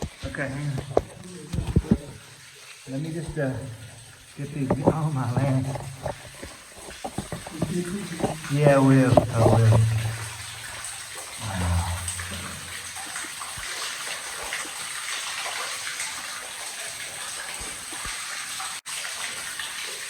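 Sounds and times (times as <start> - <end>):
underground waterfall splashing: 0.0 - 20.0
low vocal grunt: 11.4 - 13.0.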